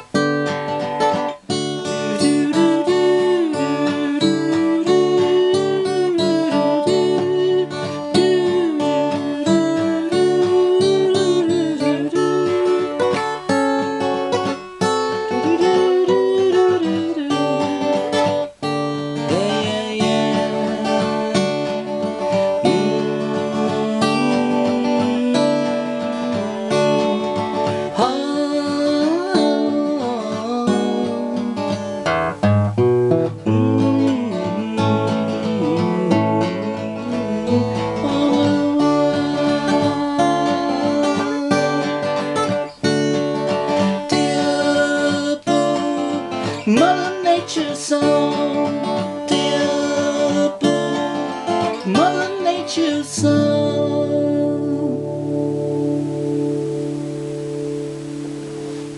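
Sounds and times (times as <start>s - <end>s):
acoustic guitar playing: 0.0s - 58.9s
wordless vocal: 19.2s - 32.0s, 33.4s - 42.4s.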